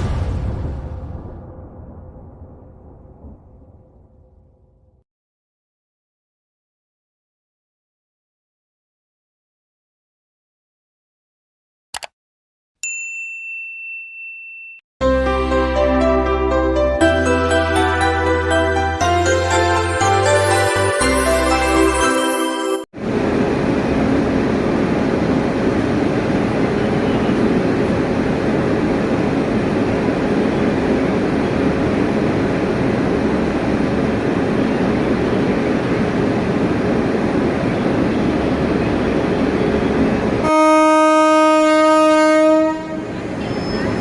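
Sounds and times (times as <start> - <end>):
train rail rumble: 23.0 - 44.0
train horn blast: 40.4 - 43.2.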